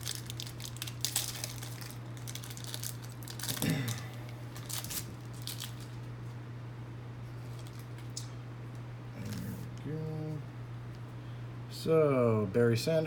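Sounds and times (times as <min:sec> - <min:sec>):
cards rustling: 0:00.0 - 0:06.1
foil wrapper crinkling and tearing: 0:00.0 - 0:06.2, 0:07.4 - 0:08.2.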